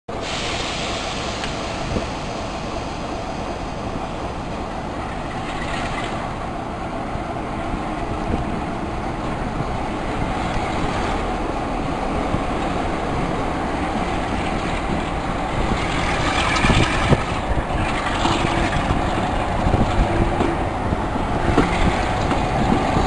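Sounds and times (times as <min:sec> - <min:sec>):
train rumbling: 0:00.1 - 0:23.0.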